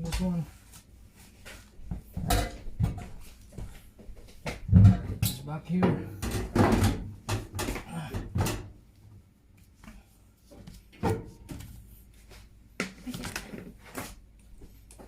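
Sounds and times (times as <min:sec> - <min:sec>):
washing machine parts knocking: 0:04.4 - 0:08.8.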